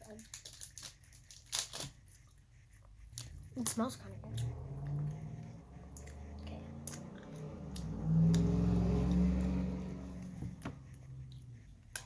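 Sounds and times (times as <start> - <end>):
sharp clicks or crinkles: 0.2 - 2.2.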